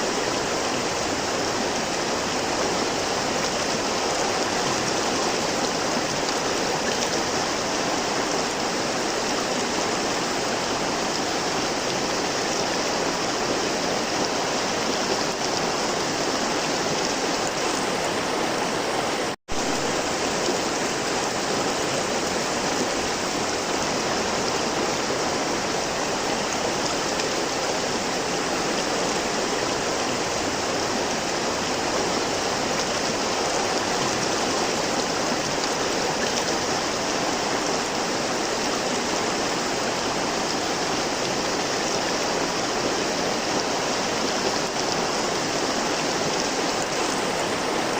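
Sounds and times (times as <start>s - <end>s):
river water rushing: 0.0s - 47.9s.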